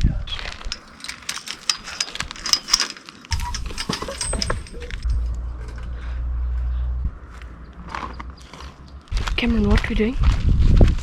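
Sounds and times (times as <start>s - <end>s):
thin high ring: 0.7s - 5.2s
metal clinking and jangling: 0.7s - 5.3s.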